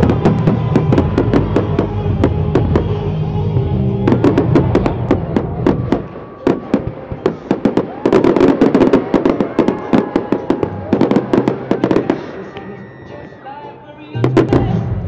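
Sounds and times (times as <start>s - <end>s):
fireworks crackling and popping: 0.0s - 3.0s, 4.1s - 12.8s.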